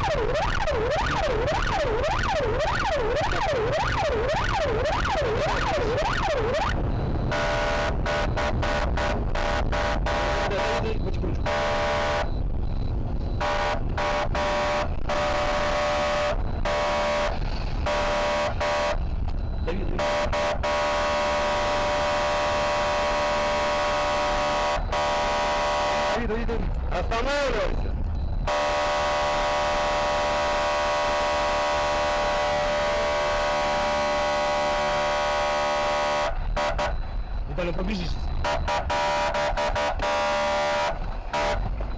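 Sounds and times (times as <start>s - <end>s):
engine and road rumble: 0.0s - 41.9s
car horn honking: 7.3s - 12.4s, 13.4s - 19.0s, 19.7s - 26.3s, 28.4s - 37.1s, 38.4s - 41.9s.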